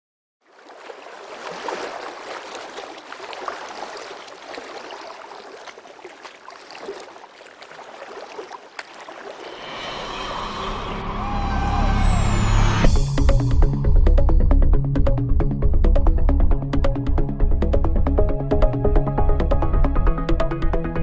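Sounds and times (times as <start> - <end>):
water rushing along boat hull: 0.4 - 13.4.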